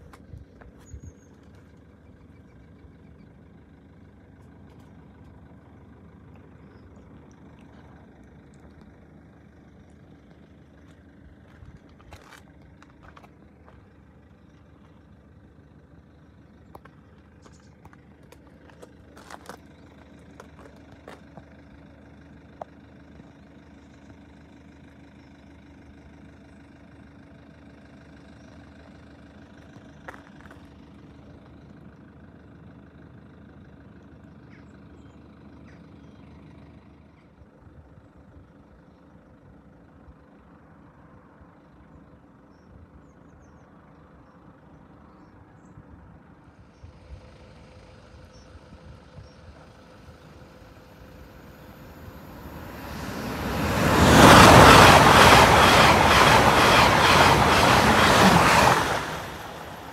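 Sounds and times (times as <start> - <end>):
wheels clattering over crossing rails: 49.6 - 59.9
rush of passing train: 50.2 - 59.9.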